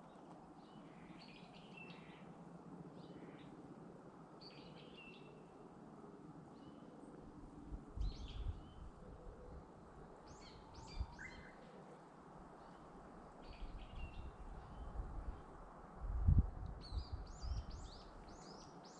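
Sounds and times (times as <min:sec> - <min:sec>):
faint outdoor hiss: 0:00.0 - 0:18.9
small birds chirping: 0:16.8 - 0:18.9.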